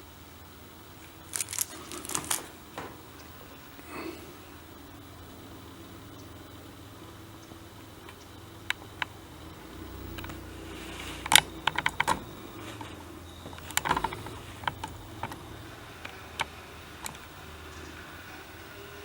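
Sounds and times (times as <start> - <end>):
steady low hum: 0.0 - 19.0
small hard objects clicking: 1.0 - 3.3, 10.1 - 17.3.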